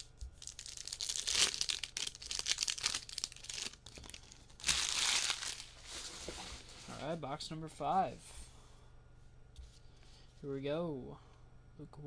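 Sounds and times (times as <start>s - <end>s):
plastic wrappers crinkling and tearing: 0.0s - 7.0s.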